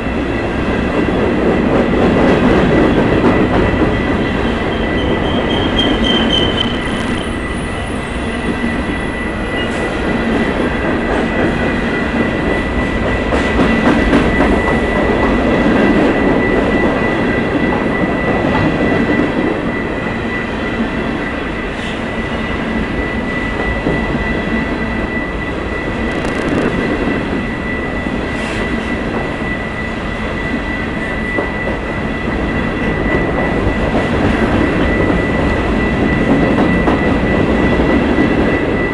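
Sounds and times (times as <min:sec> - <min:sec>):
train rumble and wheel clatter: 0:00.0 - 0:38.9
high-pitched wheel squeal: 0:03.8 - 0:09.9.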